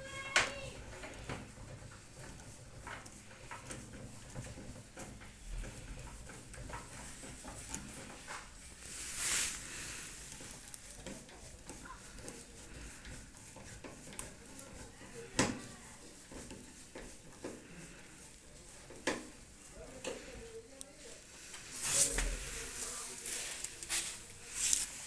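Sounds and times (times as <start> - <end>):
clicks taps and rattles on metal: 0.1 - 8.8.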